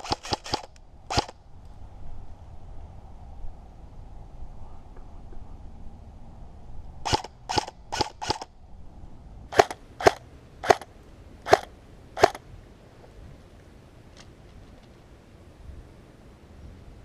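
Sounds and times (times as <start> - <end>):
airsoft gun shots: 0.0 - 1.3, 7.1 - 8.5, 9.5 - 10.9, 11.5 - 12.4.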